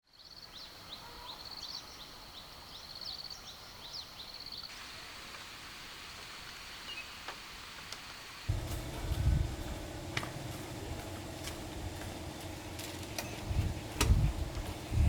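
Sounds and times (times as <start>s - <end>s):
background hiss: 0.1s - 15.0s
birds chirping and trilling: 8.5s - 15.0s
high insect drone: 8.5s - 15.0s.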